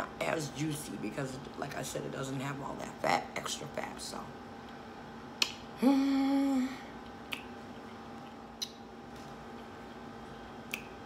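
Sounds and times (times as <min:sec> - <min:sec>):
faint room hum: 0:00.0 - 0:11.0
wet chewing clicks: 0:10.7 - 0:11.0.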